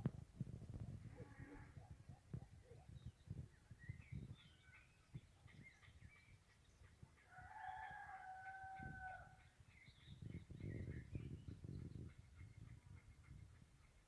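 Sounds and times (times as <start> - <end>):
small birds chirping: 1.8 - 7.3, 8.9 - 14.0
faint rooster crowing: 7.2 - 9.4.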